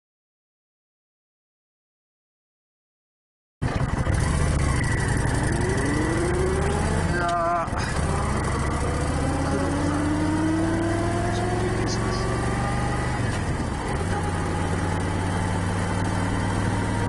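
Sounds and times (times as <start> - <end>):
motorcycle engine accelerating: 3.6 - 17.0.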